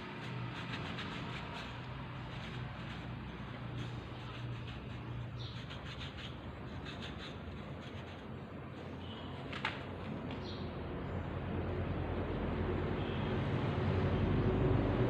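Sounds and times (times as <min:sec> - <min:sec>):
light scratching and rubbing: 0:00.0 - 0:09.3.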